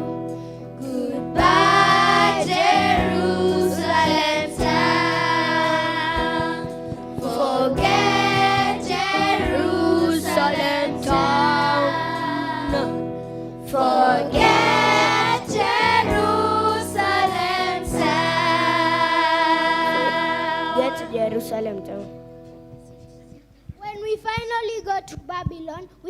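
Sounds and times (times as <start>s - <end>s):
instrumental backing music: 0.0s - 26.0s
women and children singing: 0.8s - 21.2s.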